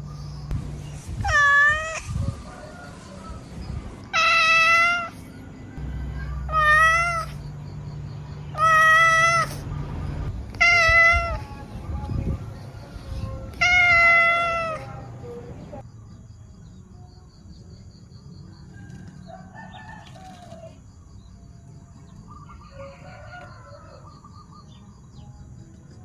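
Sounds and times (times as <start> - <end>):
cat meowing: 1.2 - 2.2, 4.0 - 5.2, 6.2 - 7.4, 8.5 - 9.6, 10.5 - 11.6, 13.5 - 15.0
drawn-out animal calls: 4.1 - 7.5, 8.4 - 11.7.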